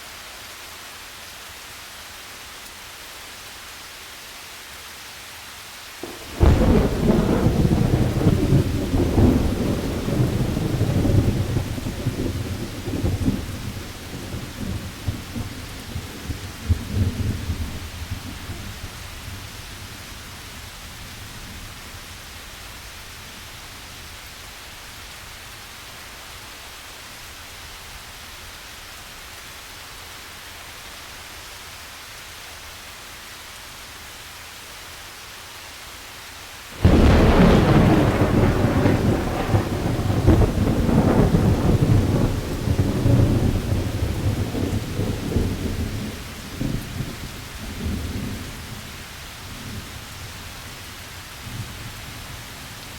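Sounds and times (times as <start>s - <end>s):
rain hiss: 0.0s - 52.9s
thunderclap rumbling: 6.0s - 15.5s, 36.8s - 47.2s.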